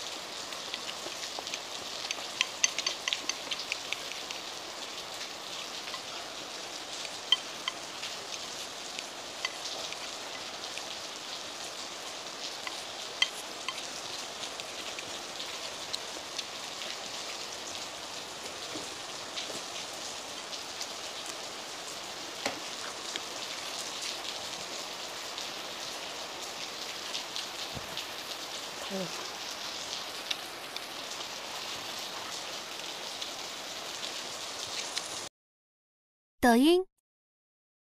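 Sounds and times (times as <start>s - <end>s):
heavy rain falling: 0.0s - 35.3s
chopsticks clicking against a bowl: 0.7s - 4.4s, 12.6s - 13.9s.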